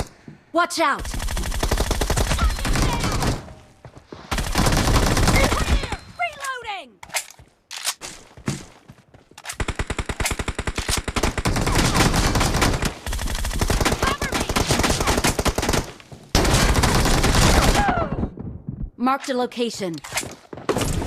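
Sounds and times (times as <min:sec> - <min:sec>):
video game gunfire: 0:01.0 - 0:03.6, 0:04.3 - 0:06.0, 0:09.6 - 0:17.9.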